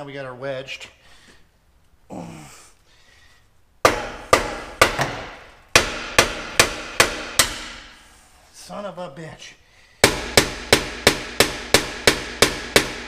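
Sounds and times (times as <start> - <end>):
hammer striking metal pipe: 3.9 - 8.0, 10.0 - 13.0.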